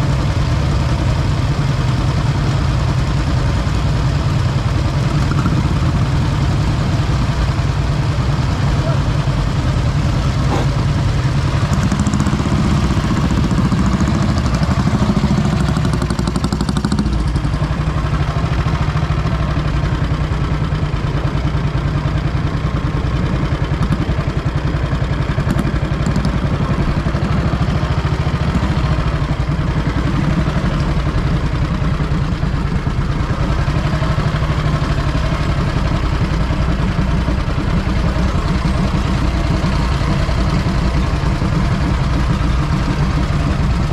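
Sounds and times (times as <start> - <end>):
motorcycle engine idling: 0.0 - 43.9.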